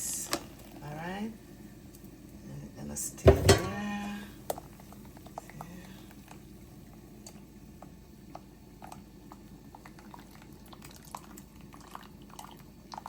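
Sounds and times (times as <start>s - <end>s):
pot simmering with small pops: 3.6s - 13.0s.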